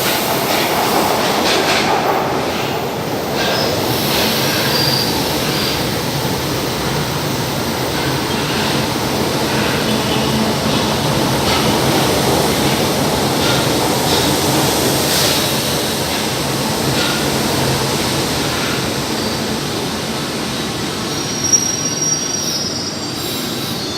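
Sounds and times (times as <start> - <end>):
train rumbling on rails: 0.0 - 23.9
high wheel squeal: 3.4 - 5.9, 21.0 - 23.9.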